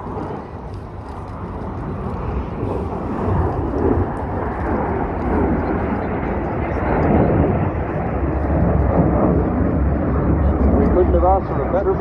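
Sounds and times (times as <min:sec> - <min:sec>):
deep rumbling jet roar: 0:00.0 - 0:12.0.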